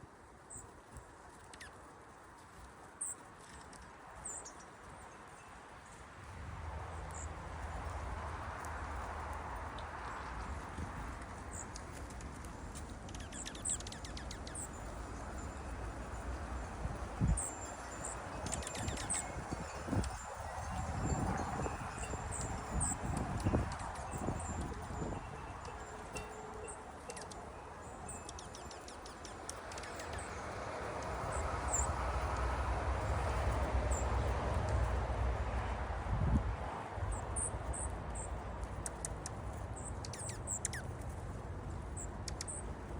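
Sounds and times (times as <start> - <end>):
birds chip calls: 9.7 - 34.2, 37.1 - 42.9.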